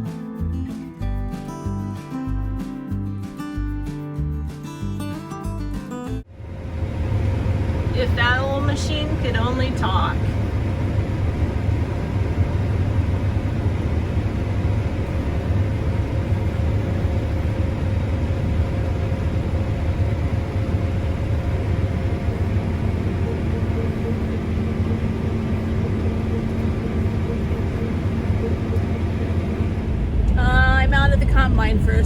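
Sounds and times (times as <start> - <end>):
combine harvester engine rumble: 6.3 - 32.0
high steady hum: 6.3 - 32.0.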